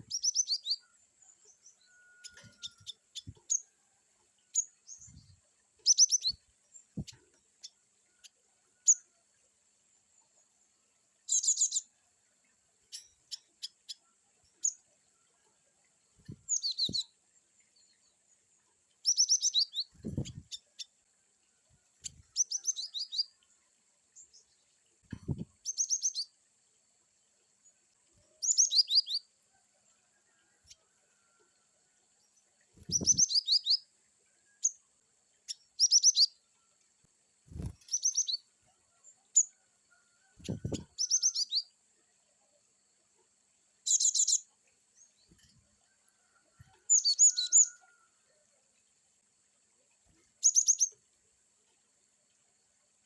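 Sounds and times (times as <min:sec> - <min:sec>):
bird chirping rapidly: 0:32.9 - 0:33.8.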